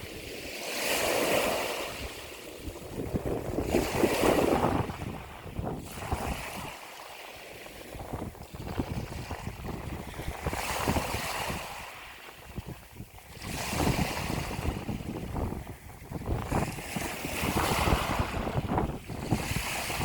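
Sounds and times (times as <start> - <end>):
ocean waves breaking: 0.0 - 20.0
wind rumbling on the microphone: 0.0 - 20.0.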